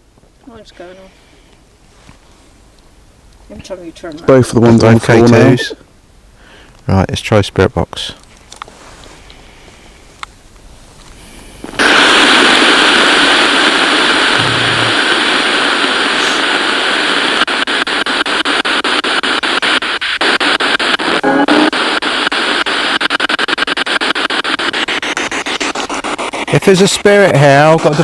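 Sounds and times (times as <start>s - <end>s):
radio static hiss: 0.0s - 28.0s
choppy radio pulses: 3.5s - 5.8s, 11.2s - 28.0s.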